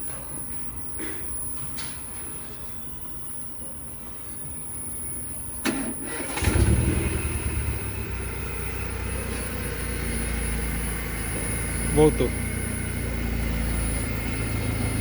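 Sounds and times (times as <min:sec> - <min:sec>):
ignition click: 0:05.6 - 0:07.0
car engine starting and idling: 0:05.6 - 0:15.0.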